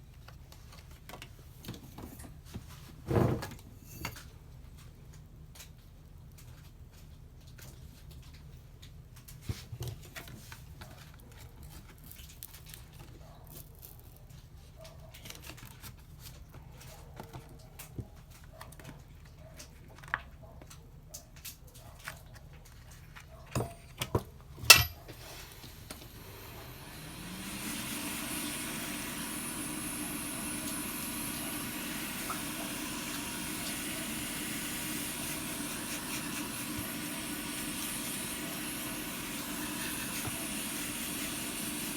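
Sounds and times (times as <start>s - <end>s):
hot-air blower hissing: 24.6s - 41.9s.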